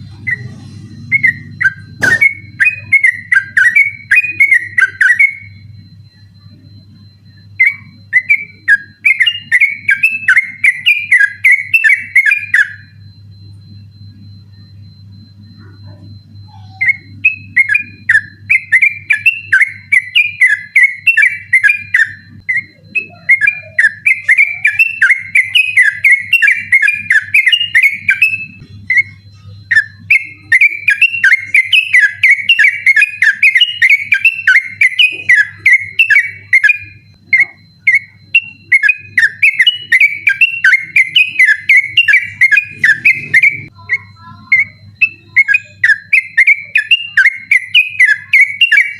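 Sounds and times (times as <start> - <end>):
bird singing whistled notes: 16.5 - 48.9.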